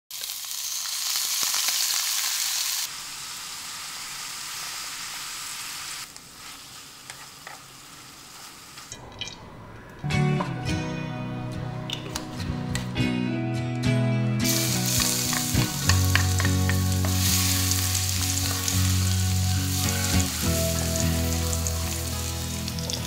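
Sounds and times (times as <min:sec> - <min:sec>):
chicken sizzling in hot oil: 0:00.1 - 0:08.9, 0:14.5 - 0:23.0
music: 0:09.4 - 0:23.0.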